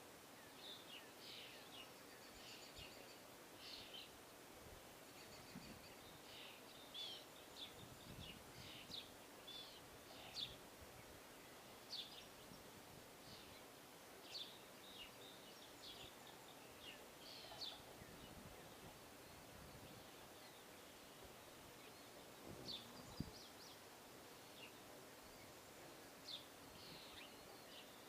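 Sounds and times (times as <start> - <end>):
outdoor background noise: 0.0 - 28.0
small birds chirping: 0.3 - 28.0.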